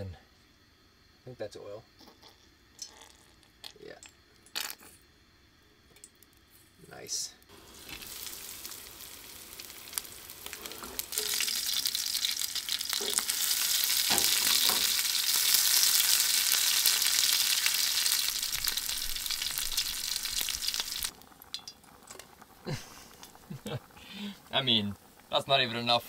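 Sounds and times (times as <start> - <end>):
fish fillets sizzling in oil: 7.5 - 26.0.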